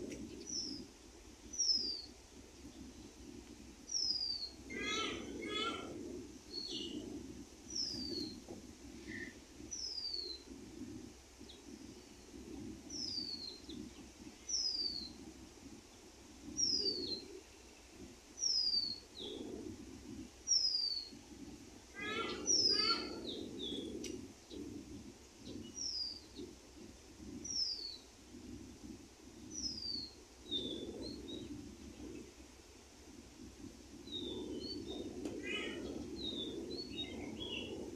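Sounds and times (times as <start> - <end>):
low uneven background noise: 0.0 - 37.9
lower rippling bird call: 3.9 - 7.0, 7.6 - 8.4, 12.9 - 15.2, 21.9 - 23.9, 34.0 - 37.7.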